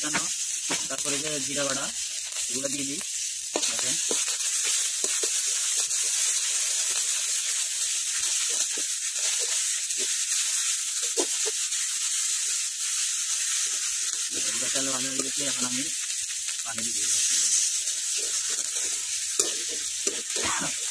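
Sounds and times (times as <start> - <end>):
onions sizzling in hot oil: 0.0 - 20.9
metal spatula scraping pan: 17.1 - 20.9.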